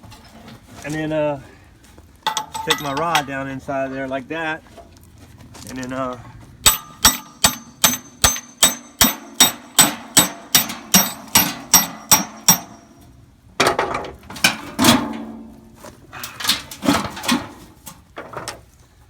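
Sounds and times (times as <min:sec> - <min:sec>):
metal clanking and rattling: 0:00.0 - 0:00.8, 0:02.2 - 0:04.1, 0:06.6 - 0:18.6
hammer striking steel rod: 0:06.6 - 0:13.0.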